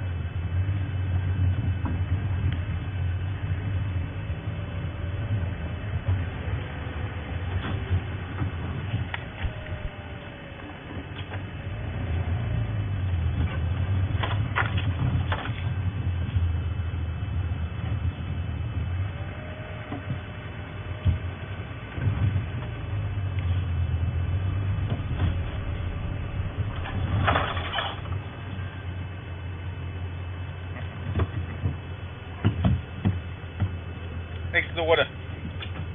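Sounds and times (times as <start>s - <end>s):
faint whine: 0.0s - 35.9s
vehicle engine running: 0.0s - 35.9s
knocks and rattles: 24.5s - 28.6s.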